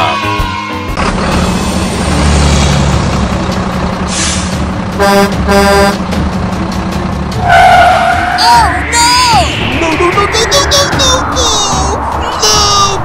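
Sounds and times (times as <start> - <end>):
truck engine running: 1.0 - 8.2
truck horn honks: 5.0 - 6.1.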